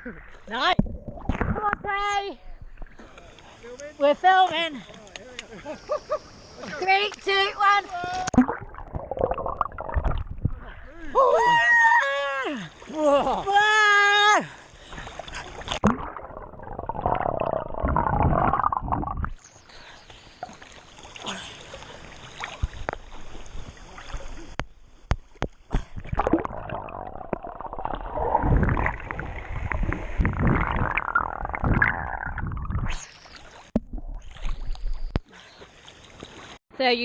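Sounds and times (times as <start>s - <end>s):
underwater rushing gurgling water: 8.3s - 10.6s, 15.6s - 19.4s, 25.9s - 35.2s.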